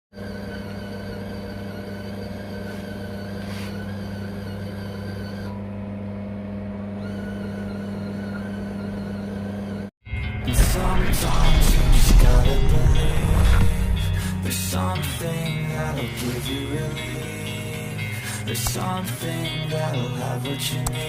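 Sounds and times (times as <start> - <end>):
mechanical hum: 0.2 - 21.0
music: 10.0 - 21.0.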